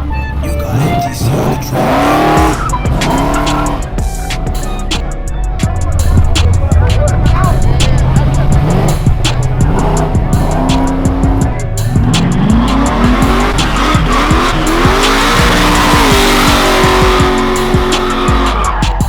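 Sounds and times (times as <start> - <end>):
tire squeal: 0.0 - 5.0, 9.7 - 19.0
car engine revving: 0.0 - 19.0
music: 0.0 - 19.0.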